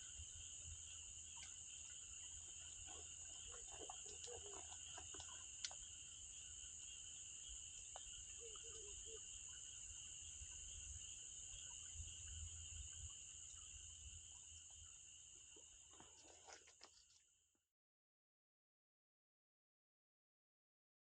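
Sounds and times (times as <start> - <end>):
crickets trilling: 0.0 - 17.4
faint campfire crackles: 0.6 - 6.2.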